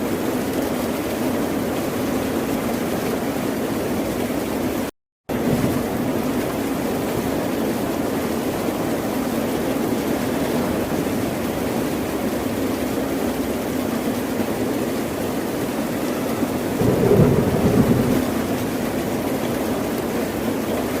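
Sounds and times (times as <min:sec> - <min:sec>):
ocean surf roaring: 0:15.9 - 0:20.0.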